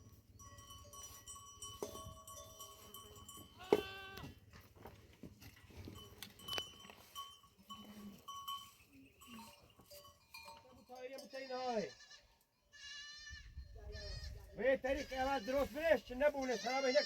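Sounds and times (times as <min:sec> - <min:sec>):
animal bells ringing and clanking: 0:00.0 - 0:12.3
sheep bleating: 0:03.6 - 0:04.4, 0:11.3 - 0:17.0.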